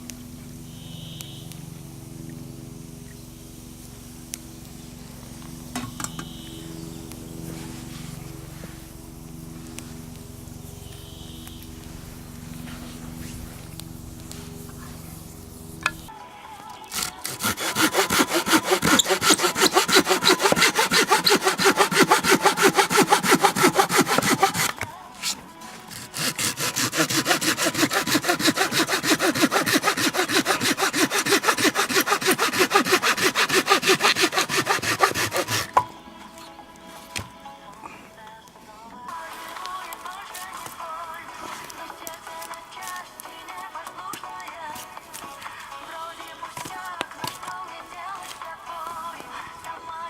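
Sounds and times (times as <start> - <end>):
hand saw cutting wood: 16.9 - 35.8.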